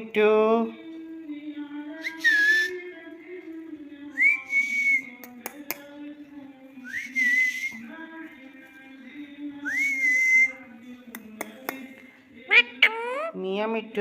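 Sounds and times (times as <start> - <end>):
sharp clicks: 5.2 - 5.9.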